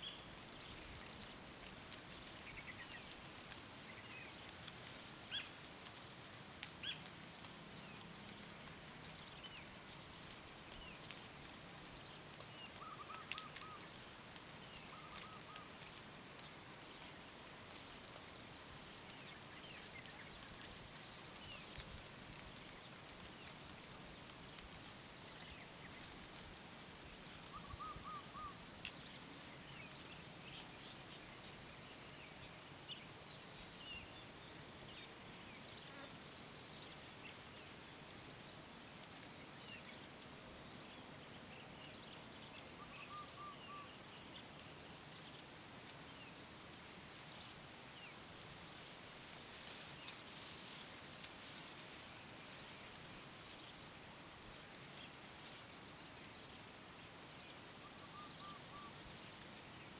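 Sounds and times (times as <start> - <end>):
faint outdoor hiss: 0.0 - 59.9
bird chirps: 27.4 - 28.6, 41.5 - 44.4, 57.6 - 59.2.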